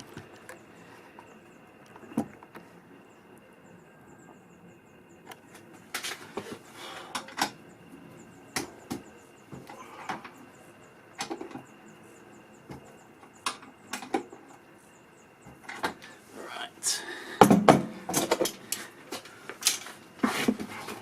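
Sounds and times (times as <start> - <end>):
hand tools clunking and clicking: 17.4 - 21.0.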